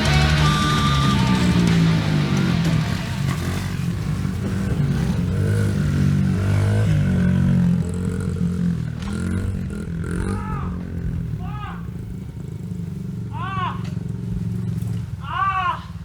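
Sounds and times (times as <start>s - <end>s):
small motorbike engine revving: 0.0s - 16.0s.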